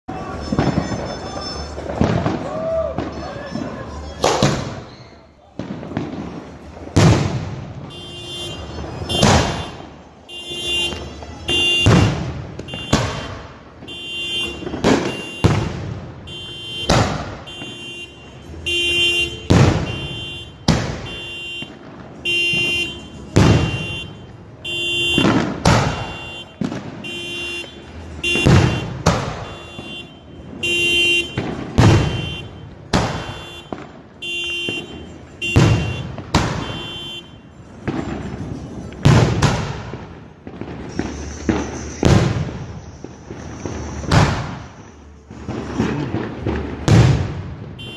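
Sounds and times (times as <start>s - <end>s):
firework bangs: 0.1s - 47.9s
car alarm tones: 7.8s - 38.5s.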